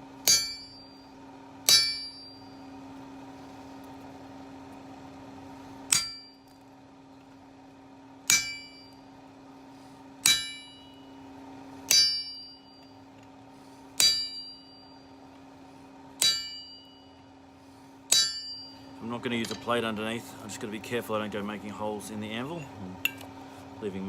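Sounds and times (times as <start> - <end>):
steady hum: 0.0 - 24.0
hammer striking chisel on metal: 0.2 - 2.5, 5.9 - 6.5, 8.3 - 9.0, 10.2 - 11.0, 11.9 - 12.9, 14.0 - 14.9, 16.2 - 17.1, 18.1 - 18.8, 19.4 - 19.8, 22.6 - 23.3.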